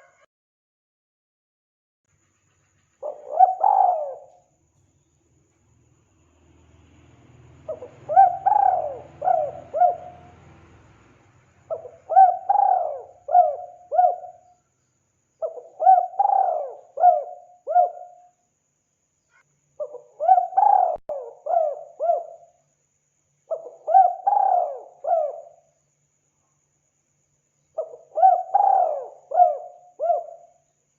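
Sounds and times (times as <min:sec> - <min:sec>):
dove cooing: 0:03.0 - 0:04.5, 0:07.7 - 0:10.4, 0:11.7 - 0:14.5, 0:15.4 - 0:18.3, 0:19.8 - 0:22.5, 0:23.5 - 0:25.6, 0:27.8 - 0:30.5.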